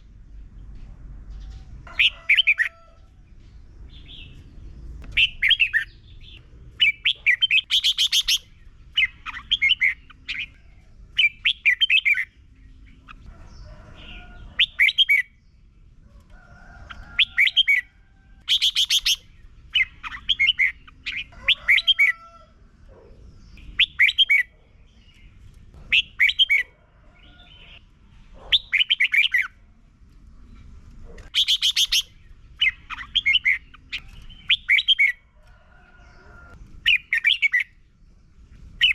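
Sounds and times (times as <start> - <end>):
bird singing warbling phrases: 4.0 - 13.3, 14.0 - 15.5, 16.9 - 22.2, 22.9 - 27.8, 28.4 - 29.6, 31.2 - 35.2, 36.8 - 37.8
thin bird calls: 5.0 - 15.4, 16.4 - 29.6, 30.4 - 37.8.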